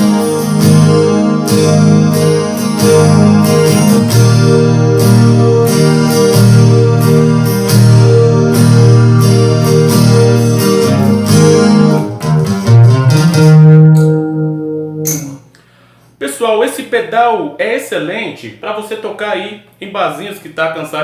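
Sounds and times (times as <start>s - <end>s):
guitar strumming with chorus effect: 0.0s - 15.7s.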